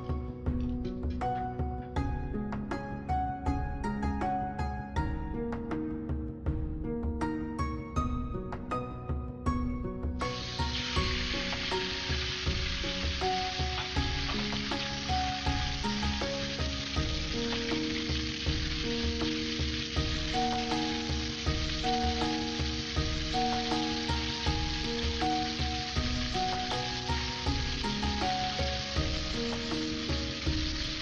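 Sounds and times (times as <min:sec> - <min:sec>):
soft background music: 0:00.0 - 0:31.0
chicken sizzling in a wok: 0:10.2 - 0:31.0.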